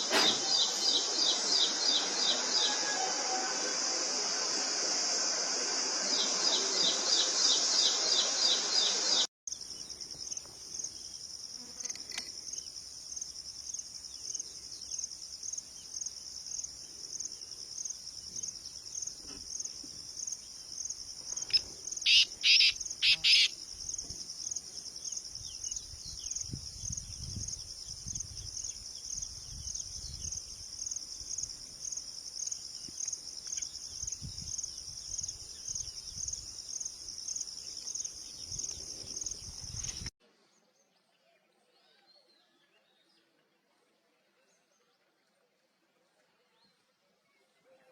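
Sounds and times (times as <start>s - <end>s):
dense high hiss: 0.0s - 9.3s
pulsing insect chirping: 3.5s - 40.1s
bird giving short high calls: 22.1s - 23.5s.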